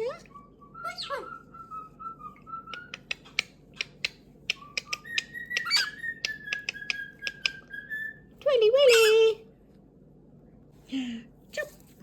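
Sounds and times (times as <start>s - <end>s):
parrot squawk: 5.1s - 6.2s.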